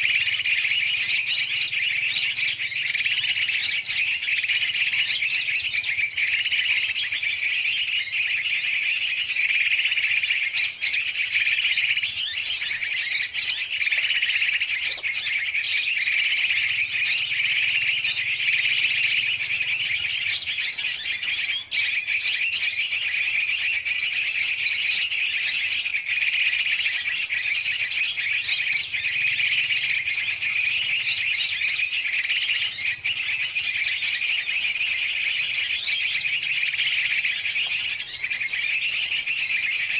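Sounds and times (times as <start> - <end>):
chorus of birds chirping: 0.0 - 39.9.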